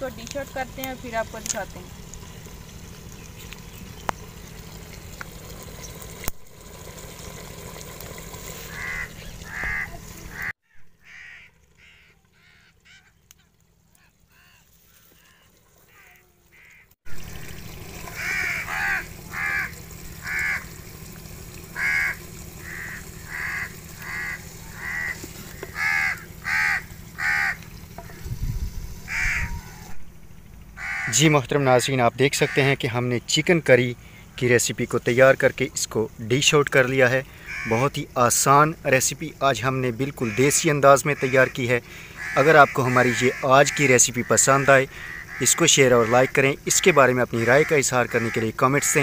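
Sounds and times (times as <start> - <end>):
bird calling in short calls: 8.7 - 13.2, 13.9 - 17.0, 18.0 - 20.7, 21.8 - 27.6, 29.1 - 30.1, 30.8 - 31.2, 37.3 - 37.8, 41.2 - 48.4.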